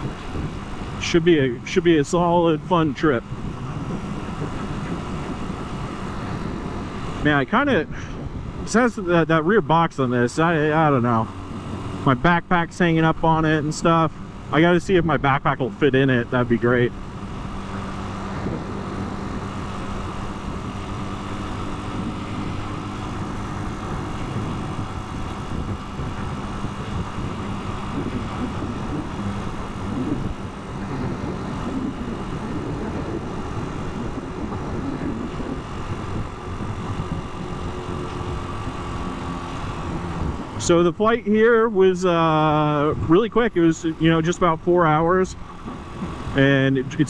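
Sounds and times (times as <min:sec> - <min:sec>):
rushing air: 0:00.0 - 0:09.1, 0:16.9 - 0:40.8
motorcycle engine running: 0:00.0 - 0:47.0
road noise: 0:00.0 - 0:47.0.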